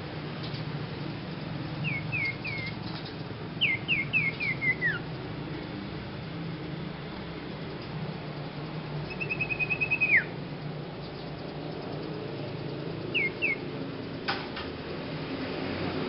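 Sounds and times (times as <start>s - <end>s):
bird trilling and whistling: 1.8s - 5.0s, 9.0s - 10.4s, 13.1s - 13.7s.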